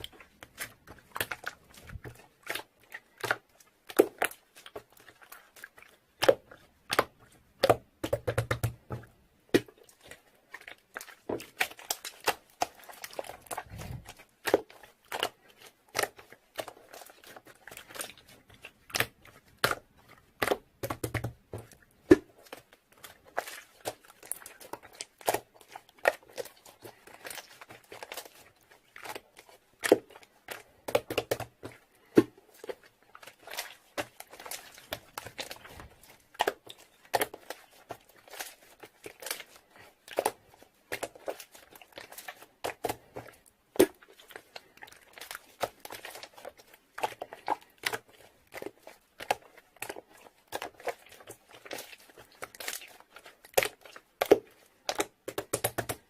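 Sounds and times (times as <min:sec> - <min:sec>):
crinkling and crackling: 0:00.0 - 0:56.0.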